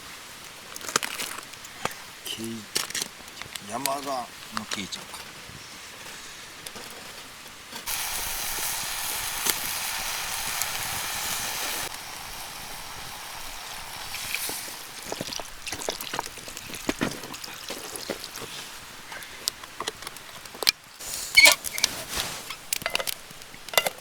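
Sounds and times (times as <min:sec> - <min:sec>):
food sizzling in a pan: 0:07.8 - 0:19.2.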